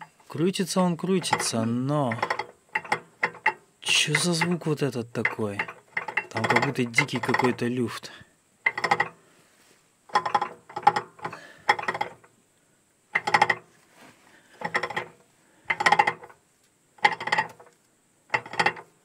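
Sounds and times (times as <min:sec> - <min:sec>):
gears clattering: 0:01.1 - 0:07.6.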